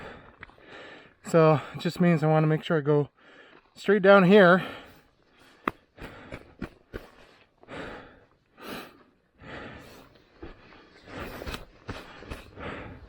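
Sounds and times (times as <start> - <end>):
person breathing hard: 0.0 - 1.2, 4.6 - 13.0.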